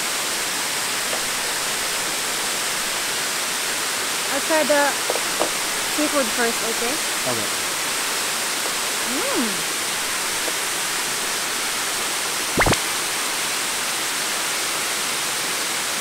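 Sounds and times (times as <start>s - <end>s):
waterfall roaring: 0.0s - 16.0s
quick sharp sweep: 12.6s - 12.9s.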